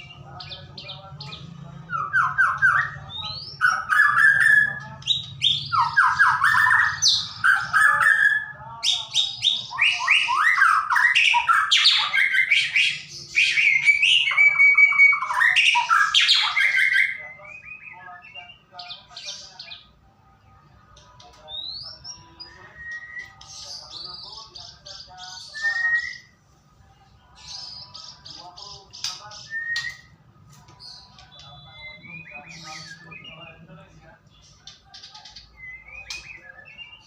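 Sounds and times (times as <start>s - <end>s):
bird singing whistles: 22.6s - 23.7s, 25.3s - 26.4s, 29.3s - 30.2s, 31.3s - 33.5s, 35.5s - 37.0s.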